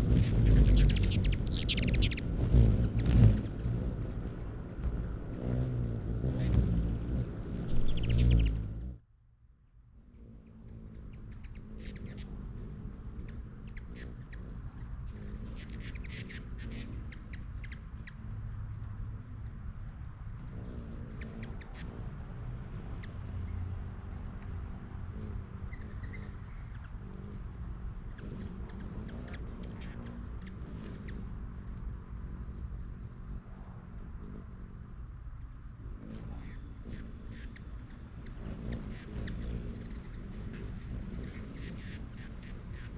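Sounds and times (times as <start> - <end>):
cricket chirping: 7.4 - 23.3, 26.7 - 42.9.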